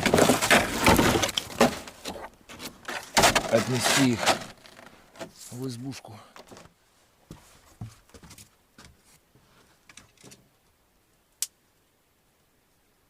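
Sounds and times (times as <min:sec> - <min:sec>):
crunches and rustles in snow: 0:00.0 - 0:05.8.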